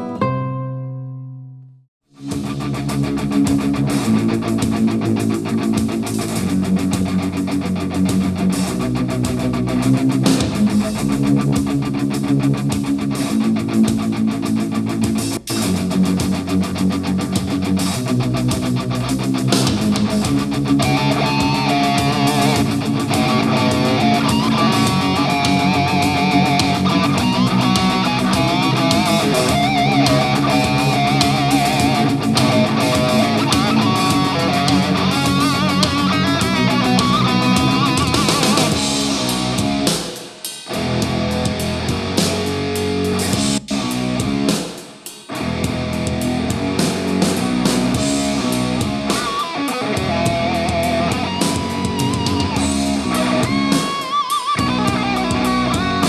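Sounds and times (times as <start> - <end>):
rock music with electric guitars: 2.1 - 56.0
wavering lead melody: 19.6 - 39.9.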